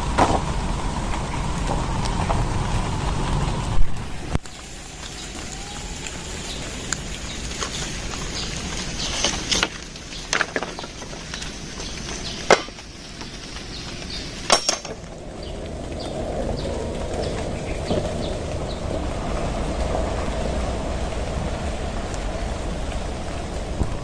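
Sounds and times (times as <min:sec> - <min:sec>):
steady hiss: 0:00.0 - 0:24.0
wood being struck: 0:00.2 - 0:00.5, 0:12.4 - 0:12.8, 0:14.5 - 0:15.1.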